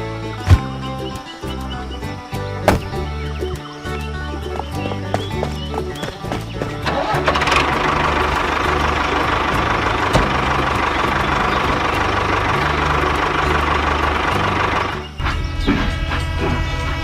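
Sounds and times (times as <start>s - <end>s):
music with stepping bass line: 0.0s - 7.3s
engine running: 0.0s - 17.0s.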